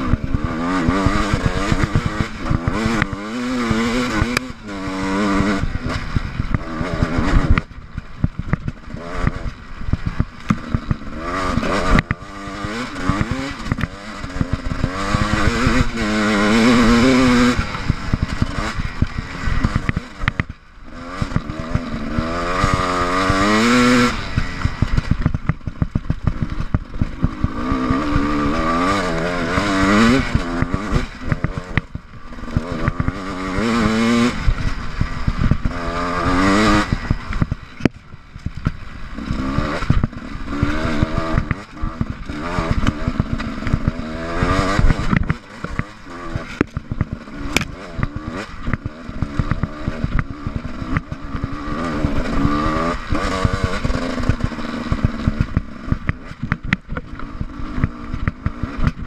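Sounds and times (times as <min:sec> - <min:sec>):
motorcycle engine revving: 0:00.0 - 0:59.0
motorcycle clattering over rocks: 0:00.1 - 0:59.0.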